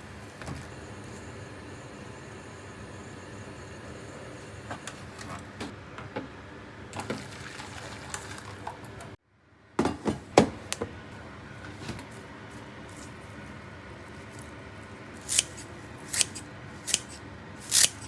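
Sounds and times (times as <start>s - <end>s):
utensils and dishes clicking: 15.2s - 18.0s.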